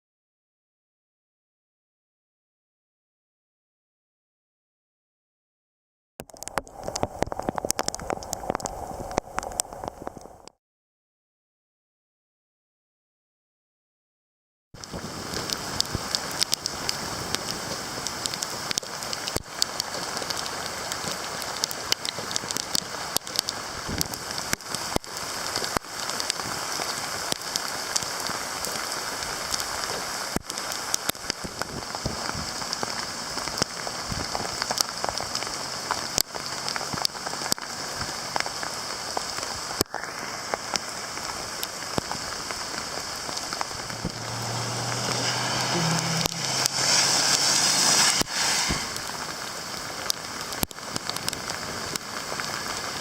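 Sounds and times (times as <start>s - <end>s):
steady rain falling: 6.2s - 10.5s, 14.8s - 53.0s
low hum: 43.6s - 49.6s.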